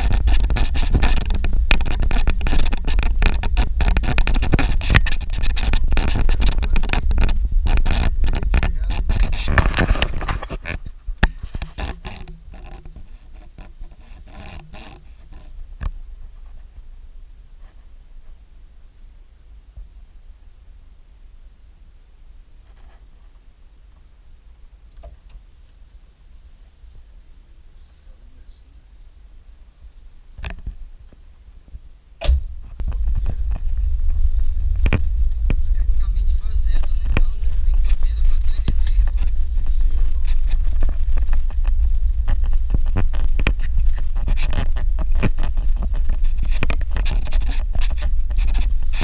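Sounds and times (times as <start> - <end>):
faint low hum: 0.0 - 49.0.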